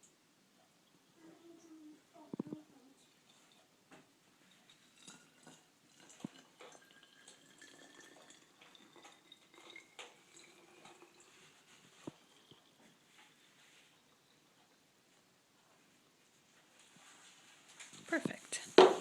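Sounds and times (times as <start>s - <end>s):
water trickling into a hole: 4.5s - 14.8s.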